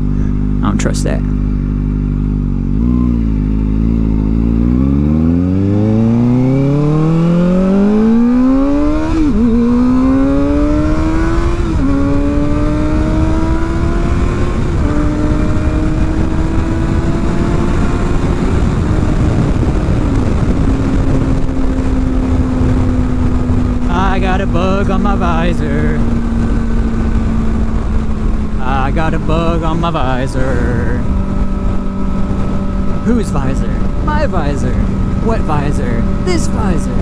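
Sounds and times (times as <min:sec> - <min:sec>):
motorcycle engine accelerating: 0:00.0 - 0:37.0
wind rush: 0:18.6 - 0:37.0.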